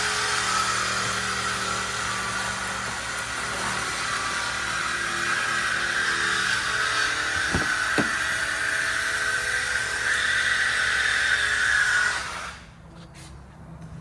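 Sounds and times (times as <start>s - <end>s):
low knocks: 7.4s - 8.4s.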